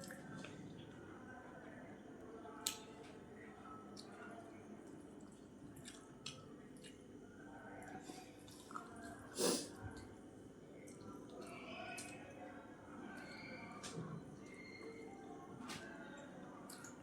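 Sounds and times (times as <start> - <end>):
chewing and mouth smacks: 5.2 - 7.0.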